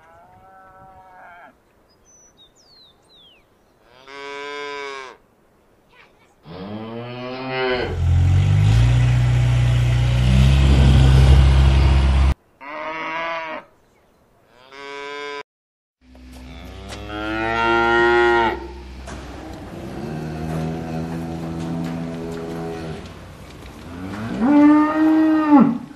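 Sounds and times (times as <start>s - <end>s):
cattle mooing: 6.5s - 13.6s, 16.3s - 23.2s, 23.8s - 25.9s.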